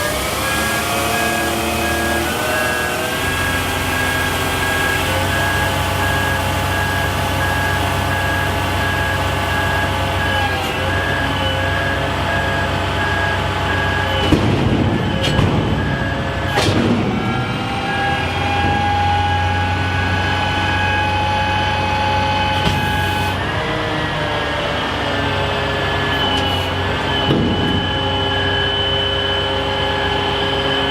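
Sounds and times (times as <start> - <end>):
truck engine running: 0.0 - 30.9
warning beep: 11.1 - 16.6
metal clanks: 14.2 - 17.4.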